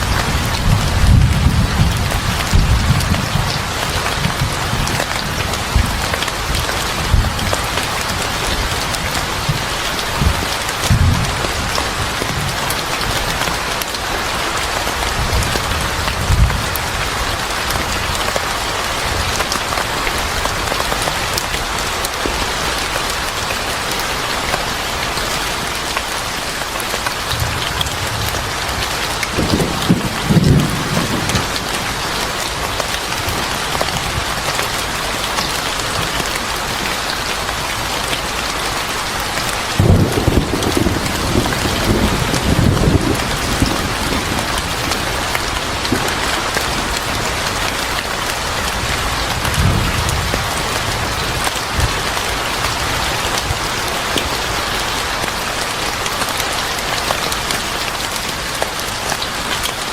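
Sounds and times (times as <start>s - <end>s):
thunder rumbles: 0.0s - 12.7s, 27.3s - 34.9s, 39.7s - 53.6s
heavy rain pattering: 0.0s - 59.9s.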